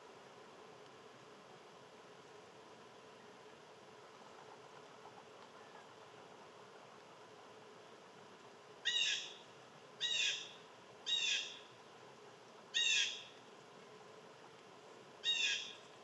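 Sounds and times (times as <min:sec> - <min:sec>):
bird calling: 0:08.8 - 0:11.7, 0:12.7 - 0:13.4, 0:15.2 - 0:15.9.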